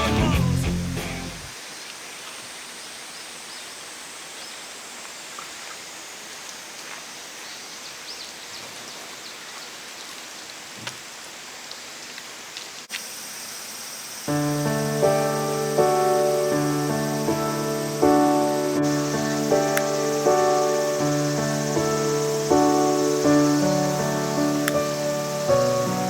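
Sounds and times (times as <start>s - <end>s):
faint ticks: 19.0s - 20.3s, 24.5s - 25.8s.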